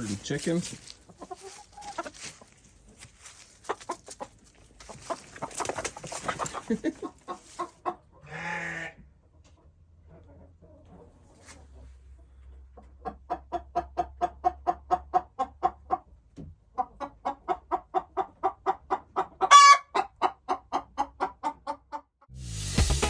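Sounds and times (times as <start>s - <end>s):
chicken clucking: 0.0s - 8.3s, 9.2s - 22.1s
chicken squawk: 0.7s - 2.6s, 3.2s - 9.0s, 16.8s - 21.9s
music: 22.3s - 23.0s.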